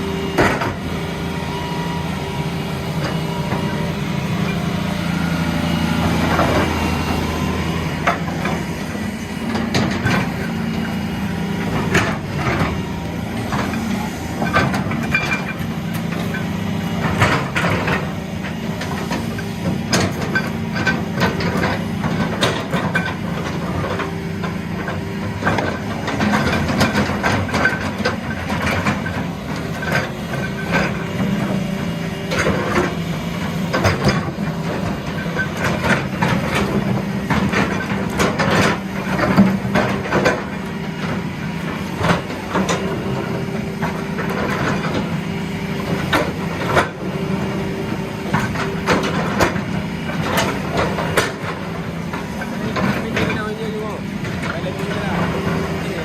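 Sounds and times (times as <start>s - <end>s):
diesel machinery droning: 0.0s - 56.0s
knocks and clanks: 0.2s - 1.0s, 6.1s - 56.0s.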